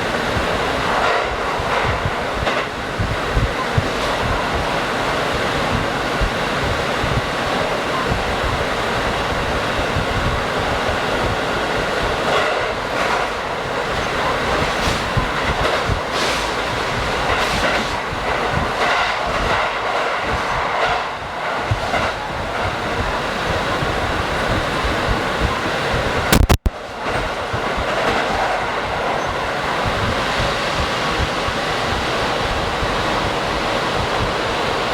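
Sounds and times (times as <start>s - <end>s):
wheels clacking over rail joints: 0.0s - 25.6s
railcar engine and wheels rumbling: 0.0s - 34.9s.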